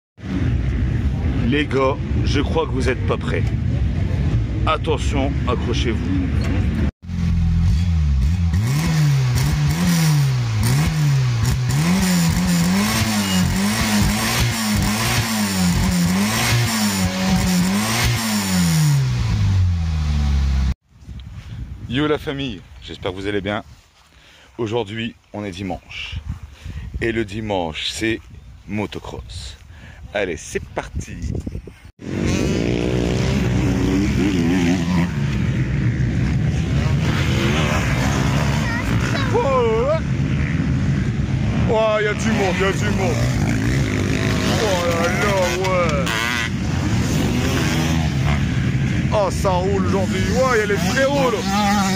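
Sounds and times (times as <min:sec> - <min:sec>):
motocross bike engine revving: 0:06.1 - 0:20.8, 0:32.0 - 0:51.9.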